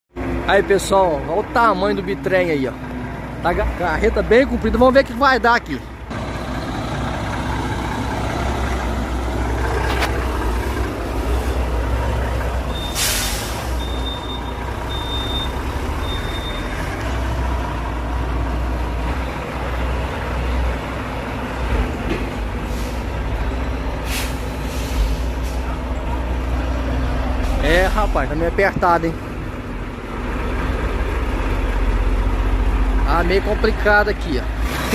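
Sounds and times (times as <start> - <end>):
truck diesel engine running: 0.1 - 34.9
air brakes hissing: 12.7 - 14.4, 22.6 - 23.2, 24.0 - 25.9
short high beeps: 13.8 - 16.7.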